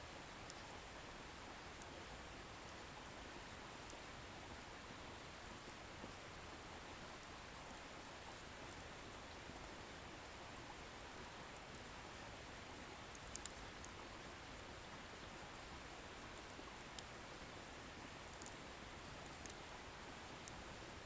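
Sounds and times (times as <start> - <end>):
firewood crackles: 13.1 - 14.0, 18.3 - 18.6.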